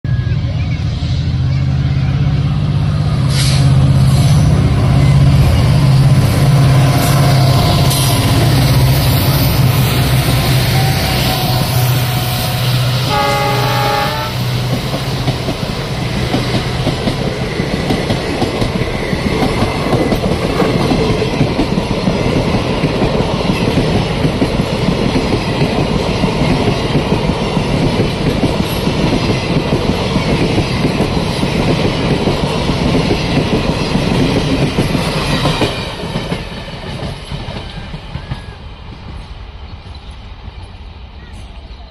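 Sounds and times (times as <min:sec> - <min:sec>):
diesel locomotive horn: 0:00.1 - 0:14.7.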